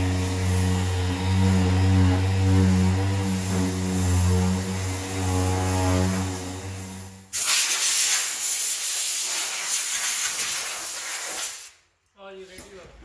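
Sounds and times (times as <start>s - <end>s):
low machine hum: 0.0s - 7.3s
air gun hissing compressed air: 7.3s - 11.8s.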